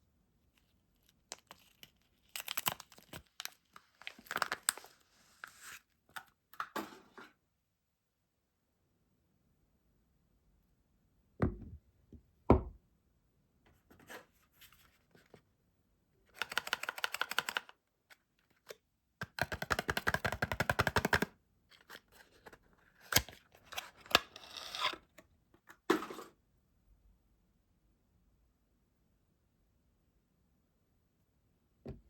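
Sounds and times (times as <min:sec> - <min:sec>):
packaging crinkling: 0:01.0 - 0:05.8
packaging tearing: 0:01.1 - 0:05.8
knock: 0:11.4 - 0:11.8, 0:12.5 - 0:12.8.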